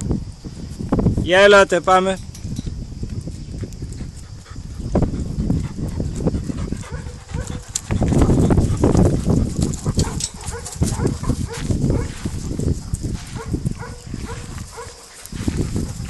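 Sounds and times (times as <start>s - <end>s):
dogs scuffling: 5.6s - 16.0s.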